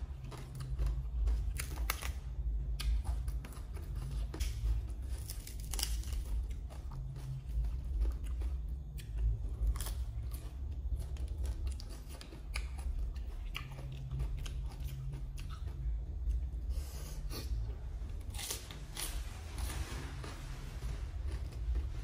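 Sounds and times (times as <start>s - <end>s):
chewing crunchy lettuce: 0.0s - 22.0s.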